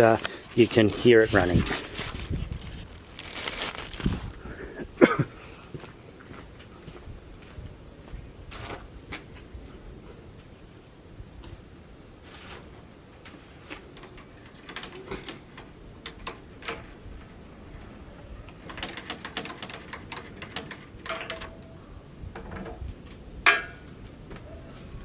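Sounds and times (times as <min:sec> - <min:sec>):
metallic clicks and knocks: 0:13.9 - 0:17.9, 0:18.5 - 0:21.7.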